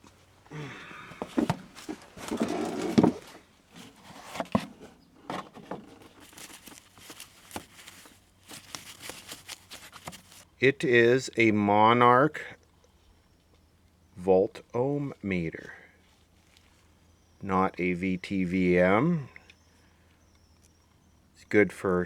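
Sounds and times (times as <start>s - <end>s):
packing material rustling: 5.5s - 10.5s.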